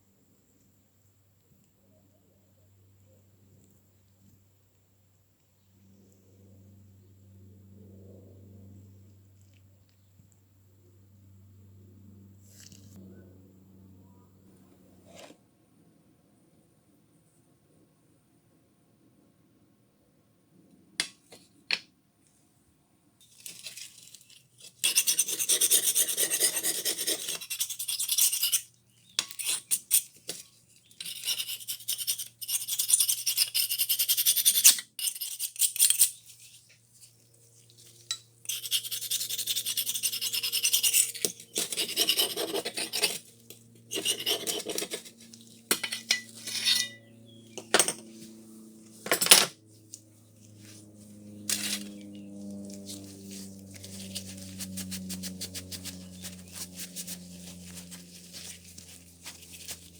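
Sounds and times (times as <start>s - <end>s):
faint low hum: 0.0s - 20.7s
abrasive scraping on metal: 38.0s - 49.4s, 50.7s - 57.8s.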